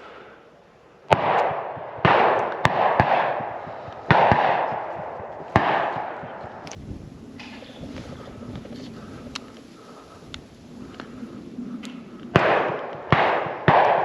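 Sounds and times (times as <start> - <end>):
shotgun shots with echo: 1.1 - 6.7, 12.3 - 14.0.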